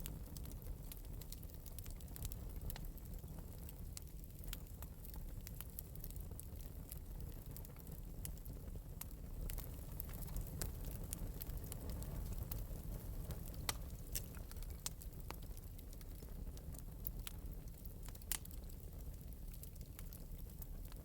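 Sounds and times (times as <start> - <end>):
fire crackling and popping: 0.0 - 21.0
wood fire rumbling: 0.0 - 21.0.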